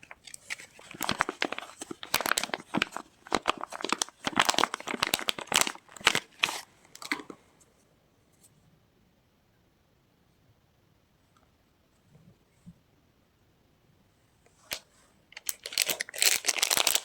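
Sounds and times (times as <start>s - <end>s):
packaging crinkling: 0.0s - 7.4s, 14.7s - 17.0s.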